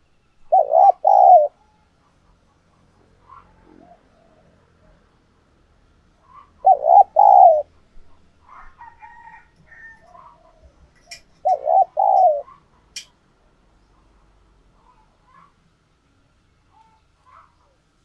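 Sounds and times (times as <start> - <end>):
faint higher bird calls: 0.0 - 2.4, 6.2 - 8.7, 9.8 - 12.7
dove cooing: 0.4 - 2.5, 3.2 - 4.9, 6.2 - 7.7, 9.8 - 12.6.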